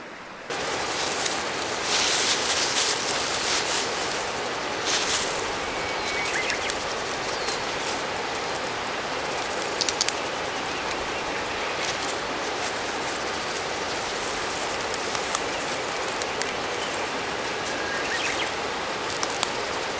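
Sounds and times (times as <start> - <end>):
stream rushing over rocks: 0.1 - 19.9
sharp clicks: 4.9 - 11.0, 11.7 - 19.6.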